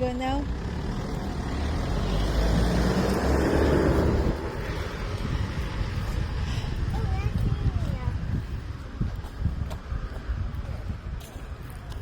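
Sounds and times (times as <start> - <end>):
car driving past: 0.5 - 6.5.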